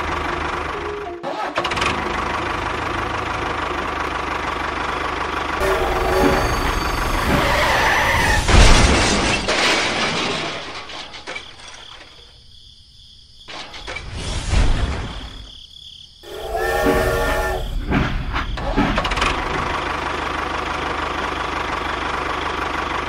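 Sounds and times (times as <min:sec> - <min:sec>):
engine running: 0:00.0 - 0:08.7, 0:16.3 - 0:23.0
crash-like peak: 0:16.2 - 0:20.0.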